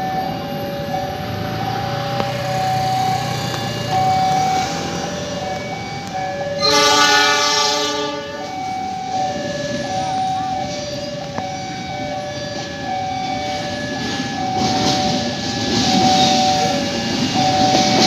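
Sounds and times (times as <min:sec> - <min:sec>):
diesel locomotive rumble: 0:00.0 - 0:18.0
level crossing two-tone alarm: 0:00.0 - 0:18.0
locomotive horn: 0:06.5 - 0:08.7.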